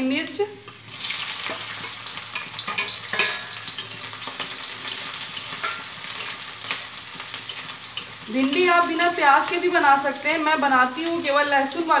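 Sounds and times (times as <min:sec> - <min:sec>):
onion sizzling in hot oil: 0:00.0 - 0:12.0
metal spatula scraping a pan: 0:01.3 - 0:09.6.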